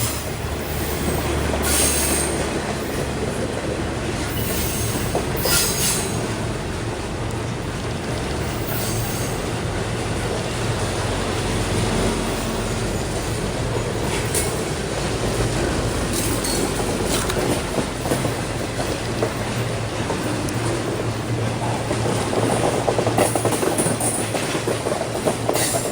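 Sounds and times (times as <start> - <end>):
wheel squeals: 0.0 - 3.1, 4.2 - 6.3, 8.4 - 9.6, 16.0 - 18.2
freight train rumbling past: 0.0 - 25.9
wheels clicking over rail joints: 0.0 - 25.9.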